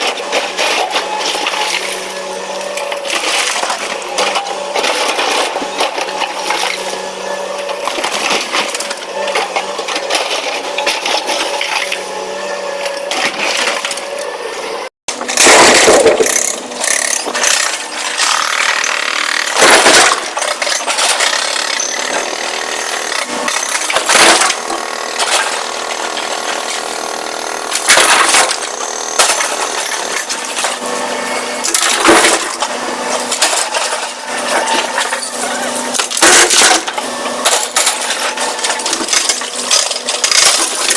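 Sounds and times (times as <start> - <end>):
steady engine hum: 8.8 - 40.2.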